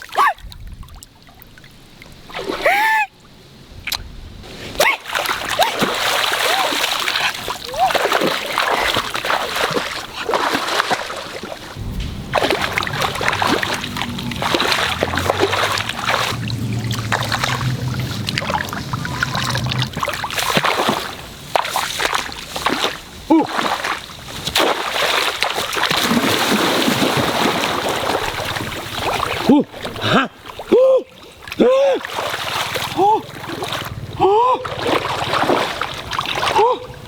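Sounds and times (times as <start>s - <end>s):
water splashing and sloshing: 0.0s - 37.0s
low steady hum: 11.6s - 21.7s.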